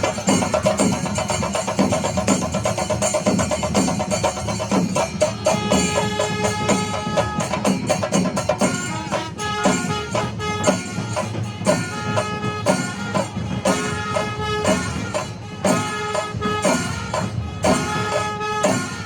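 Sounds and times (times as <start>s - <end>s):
drums fast rhythm: 0.0s - 19.0s
small cymbals: 0.0s - 19.0s
wind instrument long notes: 5.1s - 19.0s.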